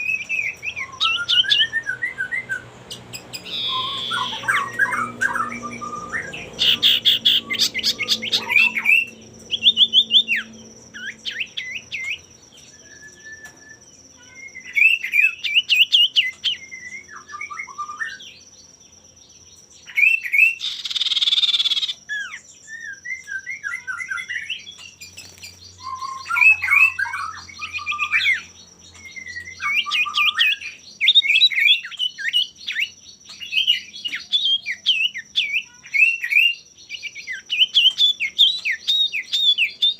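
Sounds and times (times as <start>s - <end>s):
harsh rasping bird call: 0.0s - 12.0s
bird whistling song: 0.0s - 39.9s.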